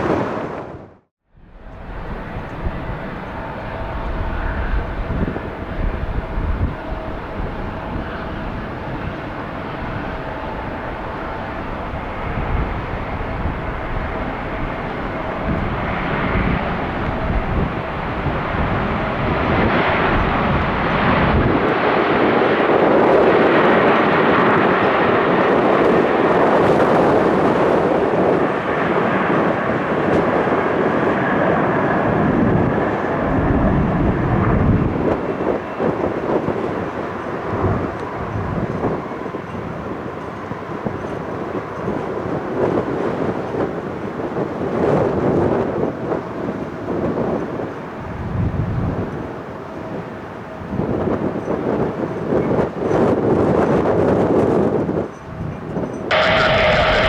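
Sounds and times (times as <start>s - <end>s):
jet taking off: 0.0s - 38.2s, 56.1s - 57.0s.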